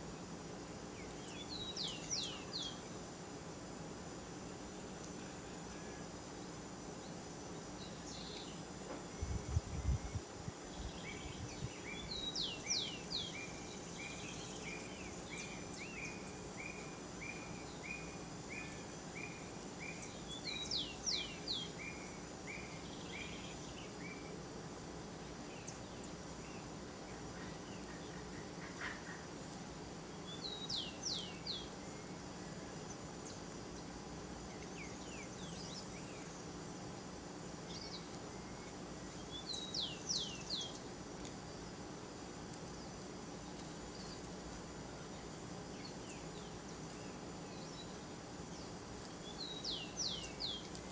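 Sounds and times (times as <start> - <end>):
faint insect drone: 0.0 - 50.9
birds calling: 25.3 - 36.6.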